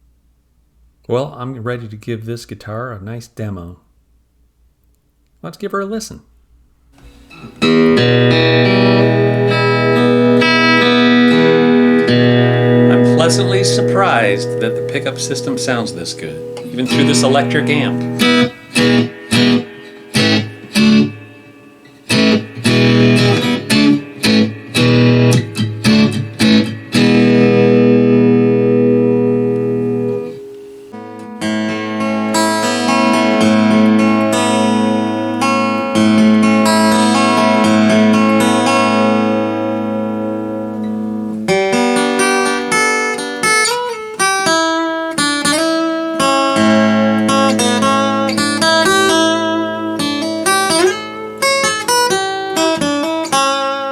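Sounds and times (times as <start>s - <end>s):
amplified acoustic guitar strumming: 7.0s - 53.9s
guitar picked passage: 7.0s - 53.9s.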